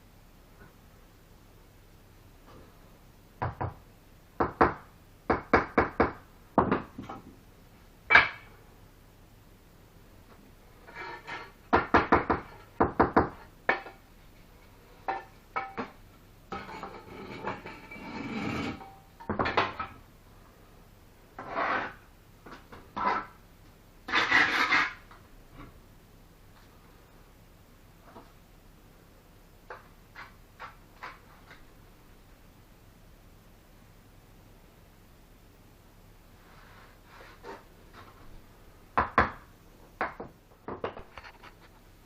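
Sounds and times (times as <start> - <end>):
trowel scraping: 10.8 - 11.6, 16.6 - 19.0, 21.4 - 22.1, 24.1 - 25.1.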